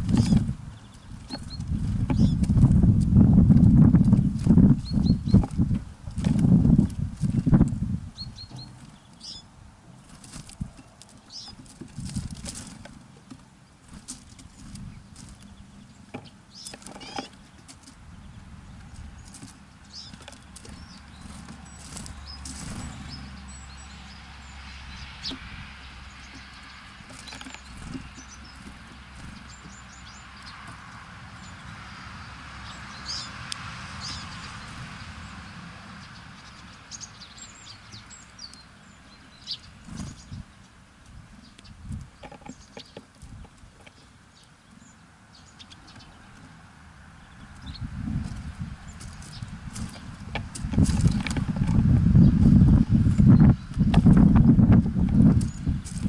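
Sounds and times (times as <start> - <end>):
bird wings fluttering: 19.2 - 23.3, 48.0 - 56.0.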